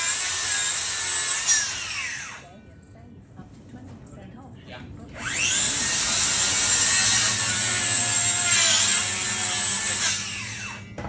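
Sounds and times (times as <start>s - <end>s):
electric power tool whining: 0.0s - 2.4s, 5.2s - 11.0s.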